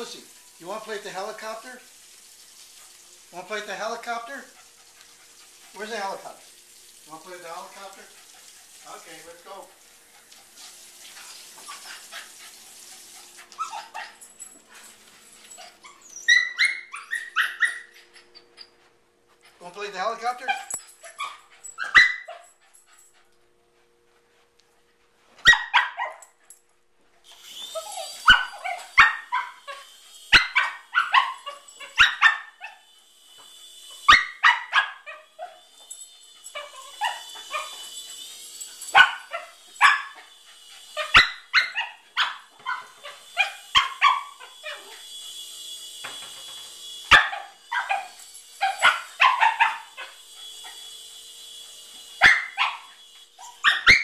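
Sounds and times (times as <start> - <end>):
dog barking excitedly: 13.5 - 14.2, 15.7 - 17.9, 20.3 - 22.5, 25.4 - 26.3, 28.1 - 32.9, 34.1 - 35.6, 38.9 - 40.2, 41.0 - 44.9, 47.1 - 50.2, 52.2 - 54.0
toy helicopter motor whine: 27.2 - 54.0.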